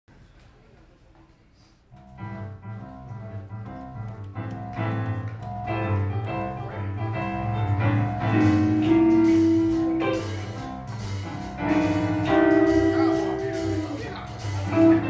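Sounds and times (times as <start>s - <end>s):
piano: 1.9s - 15.0s
live band playing: 2.0s - 15.0s
steady bass line: 2.2s - 15.0s.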